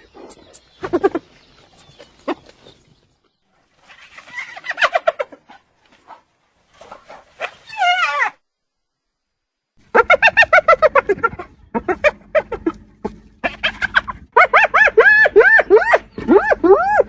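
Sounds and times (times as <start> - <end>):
hyena giggling: 9.8 - 17.0.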